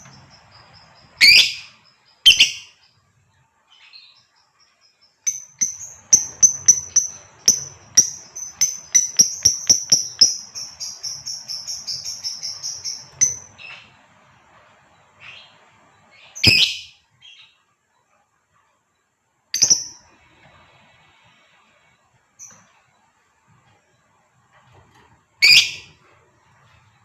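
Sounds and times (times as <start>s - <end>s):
bird chirping shrilly: 1.1s - 2.8s, 16.2s - 17.5s, 25.4s - 26.0s.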